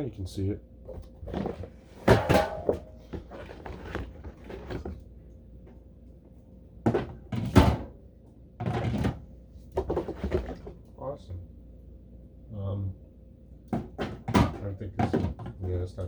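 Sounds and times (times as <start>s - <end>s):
drink cans knocking: 13.8s - 15.8s.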